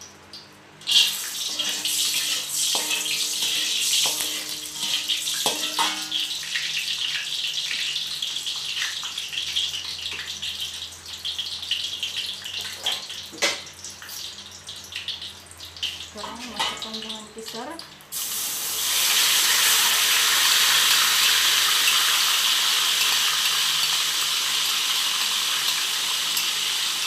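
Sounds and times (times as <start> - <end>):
spice paste sizzling in oil: 0.8 - 13.2, 13.9 - 27.0
utensil knocking against pan: 1.5 - 6.3.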